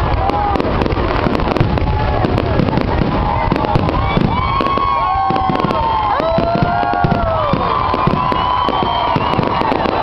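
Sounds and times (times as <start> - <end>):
fireworks bangs and crackling: 0.0 - 10.0
fireworks whistling: 0.0 - 10.0.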